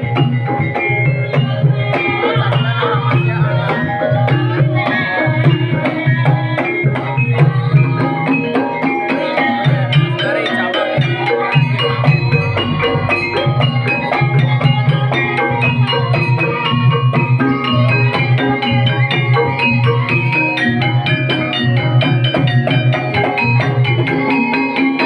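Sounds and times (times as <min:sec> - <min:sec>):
struck metallophones melody: 0:00.0 - 0:25.0.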